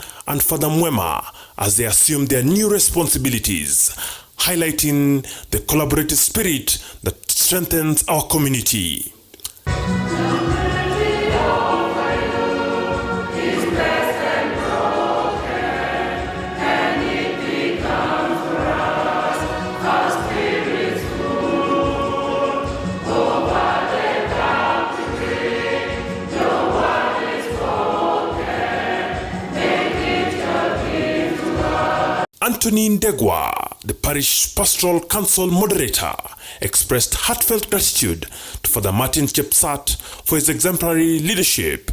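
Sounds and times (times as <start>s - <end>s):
choir singing: 9.7s - 32.3s.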